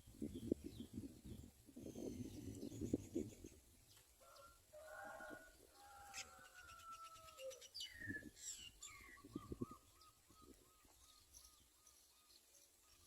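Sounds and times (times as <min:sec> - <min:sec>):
birds whistling and chirping: 0:01.8 - 0:03.4, 0:06.2 - 0:13.0.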